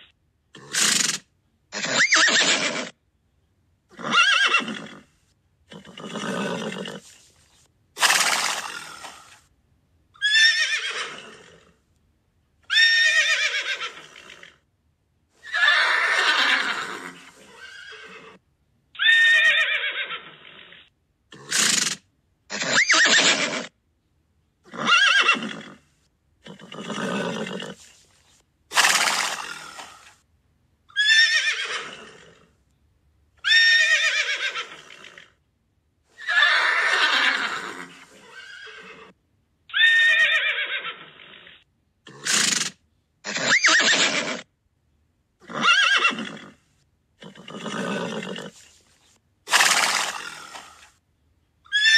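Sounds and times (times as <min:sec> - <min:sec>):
horses neighing: 0:08.0 - 0:09.4, 0:15.4 - 0:18.4, 0:28.7 - 0:30.1, 0:36.2 - 0:39.1, 0:43.3 - 0:44.5, 0:49.5 - 0:50.8.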